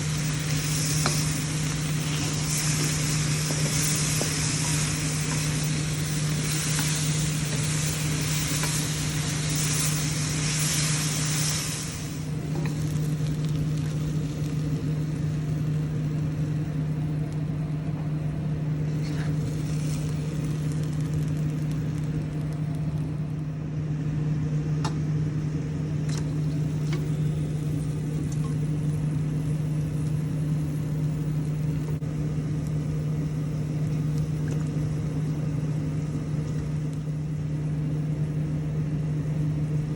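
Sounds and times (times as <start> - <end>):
stir-fry sizzling in a pan: 0.0 - 16.5, 18.8 - 22.2
steady low hum: 0.0 - 39.9.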